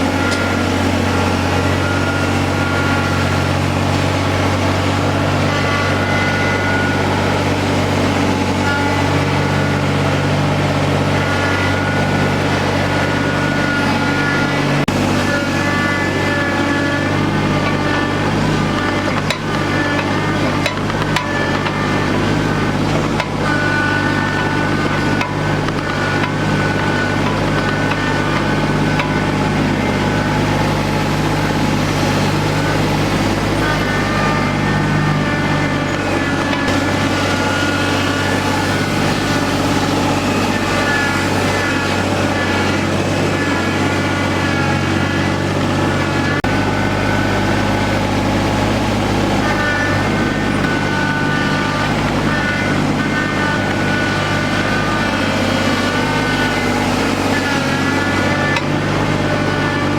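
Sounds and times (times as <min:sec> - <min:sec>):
farm vehicle engine running: 0:00.0 - 0:59.9.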